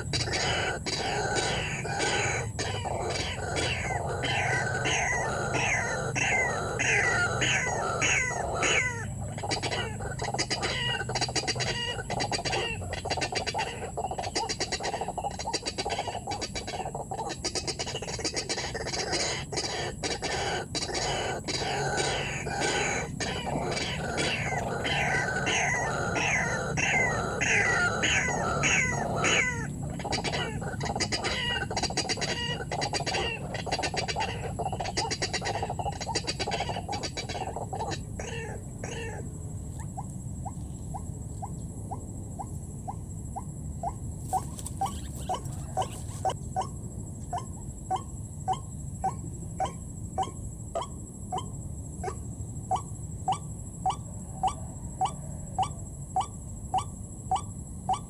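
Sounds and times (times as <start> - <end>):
bird calling and chattering: 0.0 - 39.2, 42.9 - 46.7.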